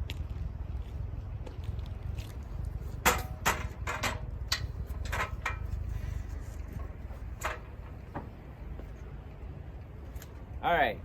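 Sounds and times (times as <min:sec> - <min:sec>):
steady low rumble: 0:00.0 - 0:11.0
knocks and clunks: 0:02.9 - 0:09.0.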